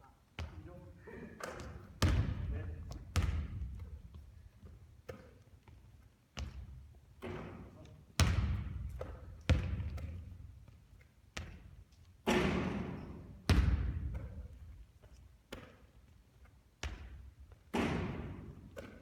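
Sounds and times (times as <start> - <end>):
basketball bouncing: 0.4 - 0.6, 1.5 - 4.2, 6.4 - 7.5, 8.2 - 10.5, 12.3 - 14.7, 16.8 - 19.0.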